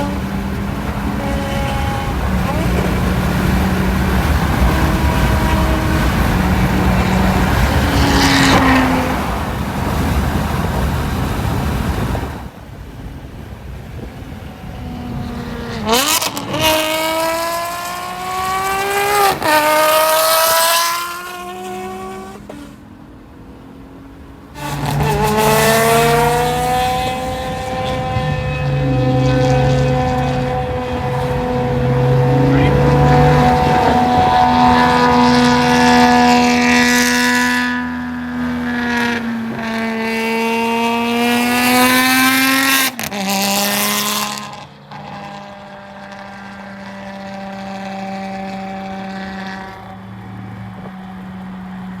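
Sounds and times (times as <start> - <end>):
racing car engine revving: 0.0 - 12.1, 14.2 - 52.0.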